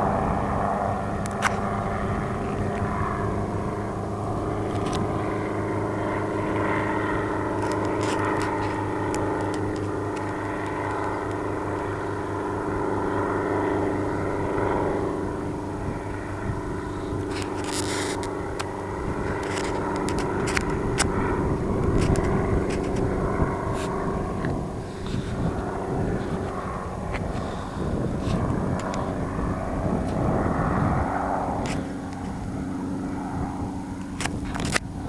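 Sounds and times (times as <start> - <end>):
helicopter engine and rotor drone: 0.0 - 35.0
faint clicks: 7.6 - 11.9.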